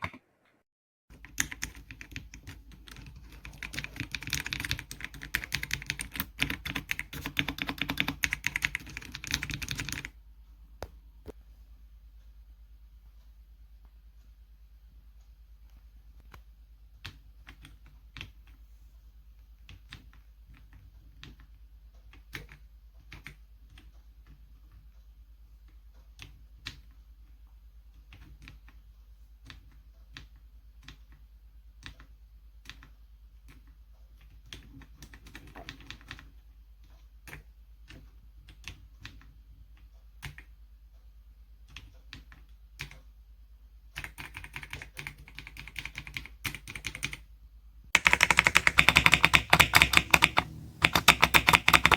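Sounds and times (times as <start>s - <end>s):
mechanical keyboard typing: 1.1s - 10.2s, 44.0s - 47.3s, 48.0s - 51.9s.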